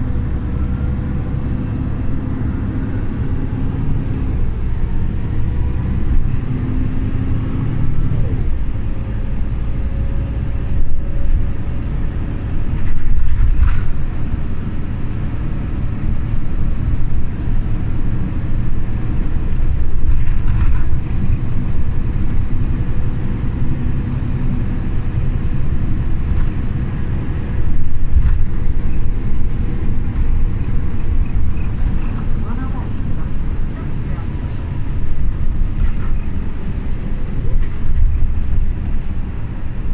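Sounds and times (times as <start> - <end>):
bus engine and road rumble: 0.0 - 39.9
sharp clicks and rattles: 27.8 - 33.4.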